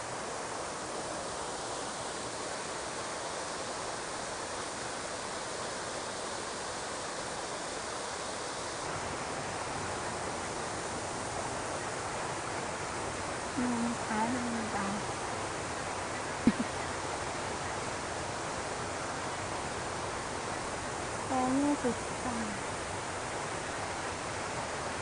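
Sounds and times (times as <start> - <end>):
stream rushing over rocks: 0.0 - 25.0
person speaking: 13.6 - 15.0, 21.3 - 22.6.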